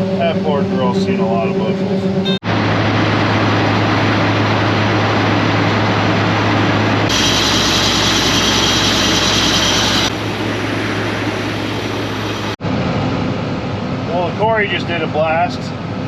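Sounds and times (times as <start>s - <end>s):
harvest machinery drone: 0.0s - 13.0s
loud hissing rush: 7.1s - 12.6s.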